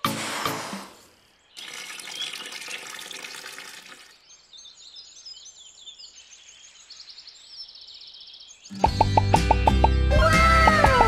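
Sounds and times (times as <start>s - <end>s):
birds twittering: 0.7s - 3.0s, 3.8s - 10.9s
water rushing: 1.6s - 4.2s.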